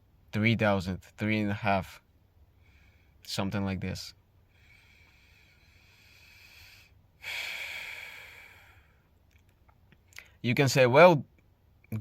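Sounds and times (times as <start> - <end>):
man breathing close to microphone: 2.5 - 3.2, 4.4 - 9.2.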